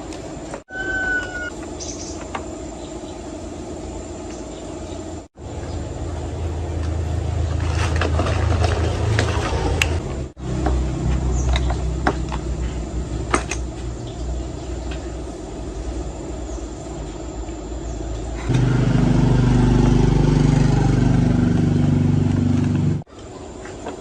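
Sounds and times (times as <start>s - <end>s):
steady engine drone: 0.7s - 23.1s
small engine running: 18.4s - 23.0s.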